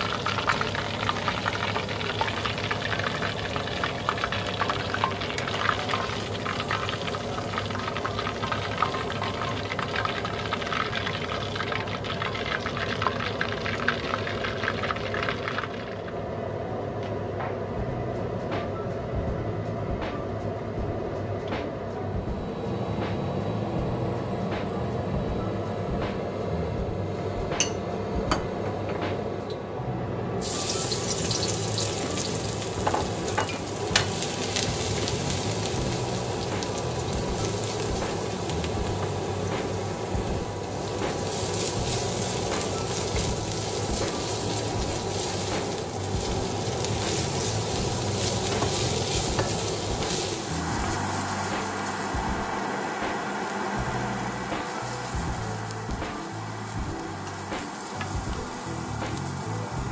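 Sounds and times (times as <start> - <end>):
food sizzling in a wok: 0.0 - 16.1, 30.4 - 59.9.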